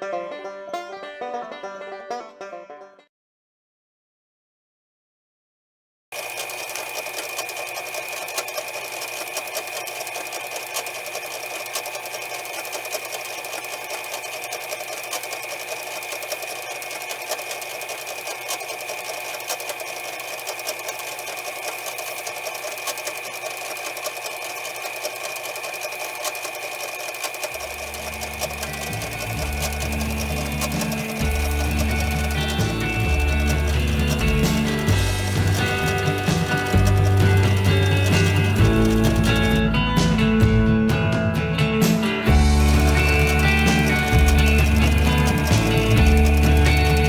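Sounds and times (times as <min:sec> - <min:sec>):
music: 0:00.0 - 0:03.1, 0:28.1 - 0:47.0
small electric motor whining: 0:06.2 - 0:39.8, 0:42.3 - 0:47.0.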